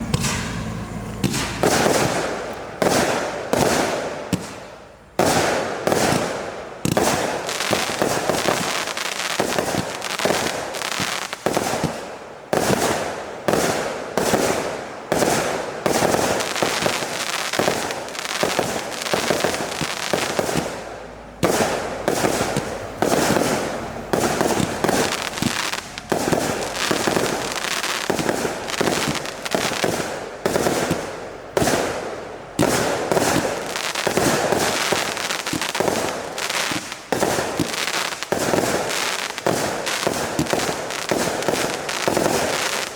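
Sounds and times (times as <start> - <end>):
firework launch thumps: 0.0 - 4.6
firework aerial bursts: 0.0 - 42.9
firework crackle: 0.0 - 42.9.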